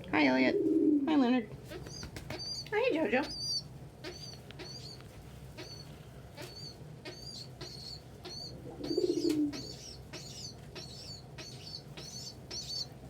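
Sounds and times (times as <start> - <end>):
adult pigeon cooing: 0.2 - 1.3, 6.4 - 12.8
young pigeon peeping: 0.2 - 13.0.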